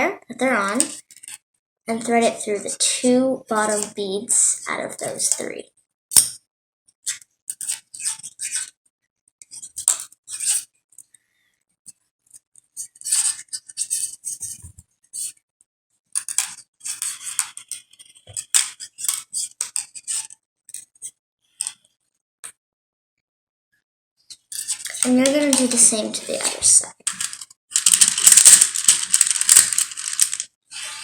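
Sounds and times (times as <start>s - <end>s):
wire scraping through beads: 24.6s - 31.0s
plastic beads clicking: 24.8s - 30.5s.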